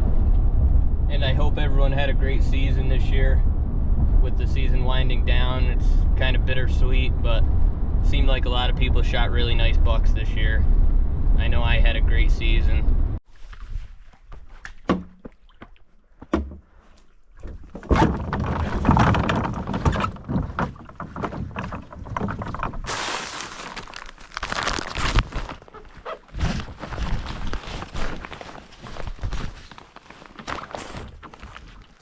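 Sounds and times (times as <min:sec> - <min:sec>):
canoe scraping and rustling: 0:13.2 - 0:32.0
knocks on canoe hull: 0:16.2 - 0:16.6
loud thunks: 0:17.5 - 0:22.9.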